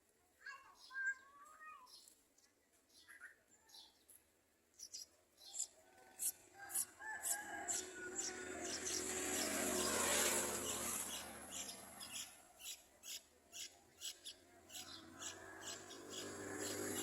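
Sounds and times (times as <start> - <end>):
nestlings begging cheeps: 5.6 - 17.0.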